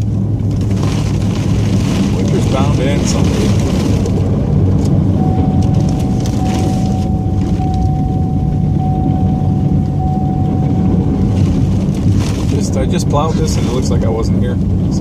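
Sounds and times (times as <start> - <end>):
vehicle engine running: 0.0 - 15.0
thin steady whine: 5.1 - 12.1.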